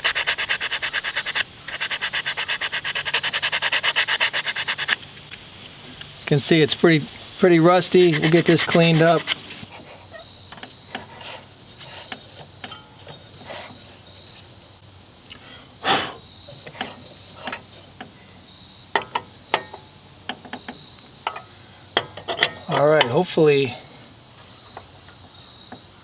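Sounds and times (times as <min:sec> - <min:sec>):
rust scraping on metal: 0:00.0 - 0:14.6, 0:16.5 - 0:18.0.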